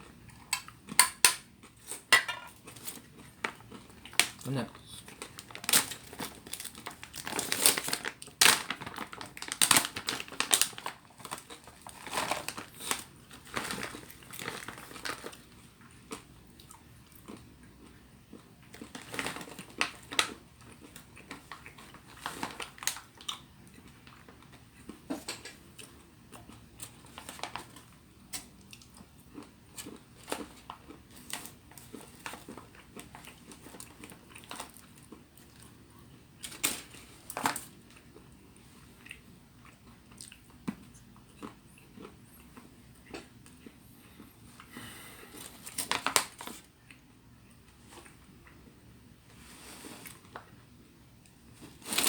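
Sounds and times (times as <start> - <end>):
crisp crunches: 4.0 - 17.4, 51.6 - 52.0
person chewing and biting: 39.0 - 44.7.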